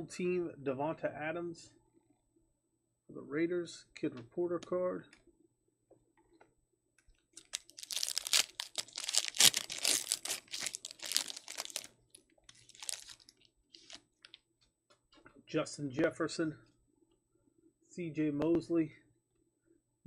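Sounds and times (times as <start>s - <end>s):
foil wrapper crackling: 7.4s - 11.9s, 12.5s - 14.4s.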